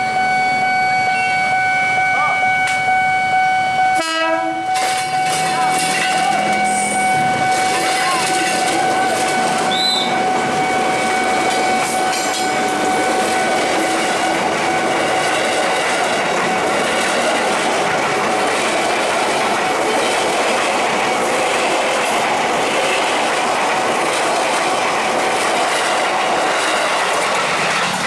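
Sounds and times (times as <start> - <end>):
crossing warning alarm tone: 0.0 - 28.0
electric train passing: 0.0 - 28.0
wheels clattering over rail joints: 11.4 - 28.0.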